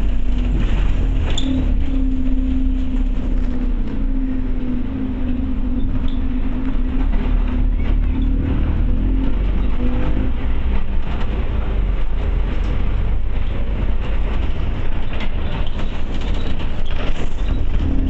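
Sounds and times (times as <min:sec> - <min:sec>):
bus engine deep rumble: 0:00.0 - 0:18.0.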